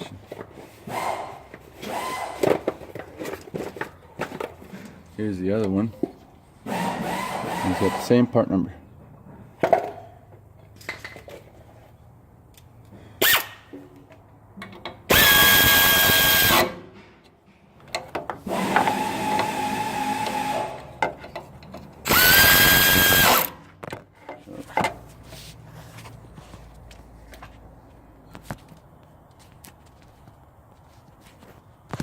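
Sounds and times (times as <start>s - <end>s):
power tool motor whining: 15.1s - 16.8s, 18.4s - 20.9s, 22.0s - 23.6s.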